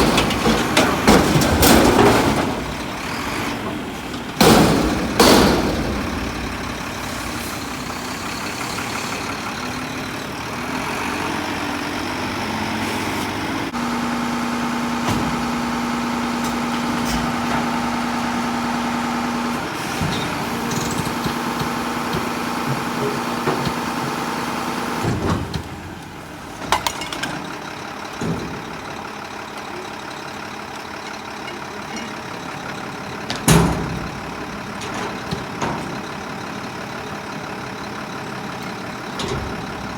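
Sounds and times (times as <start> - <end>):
garbage truck engine running: 0.0 - 39.9.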